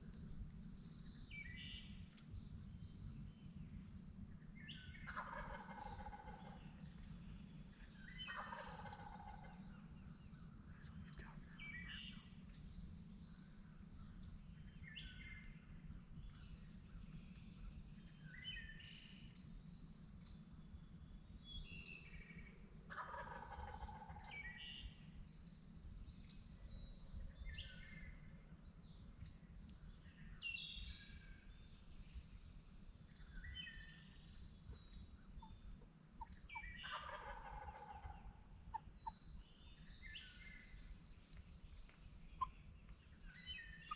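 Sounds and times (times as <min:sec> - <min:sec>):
songbirds chirping: 0:00.0 - 0:43.9
steady low background noise: 0:00.0 - 0:43.9
faint turkey gobbling: 0:04.9 - 0:07.0, 0:07.8 - 0:10.0, 0:22.9 - 0:24.6, 0:34.7 - 0:39.5, 0:42.3 - 0:42.7.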